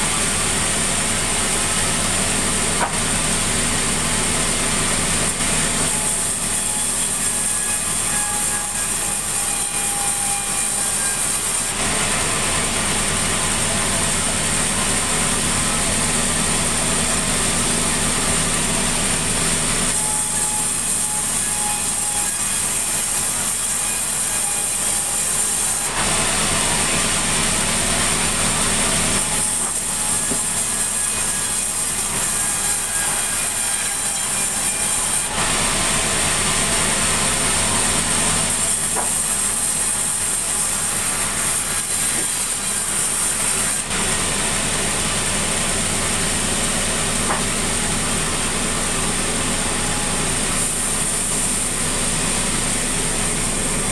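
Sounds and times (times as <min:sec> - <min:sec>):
sawmill saw cutting timber: 0:00.0 - 0:53.9.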